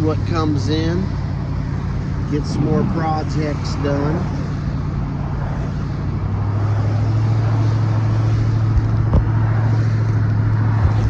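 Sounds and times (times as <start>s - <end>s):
road noise: 0.0s - 11.0s
truck engine humming: 0.0s - 11.0s.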